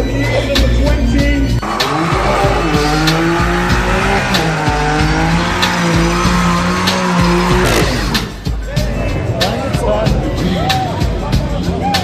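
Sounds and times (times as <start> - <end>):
hip-hop beat: 0.0 - 11.7
car engine at high revs: 1.6 - 8.4.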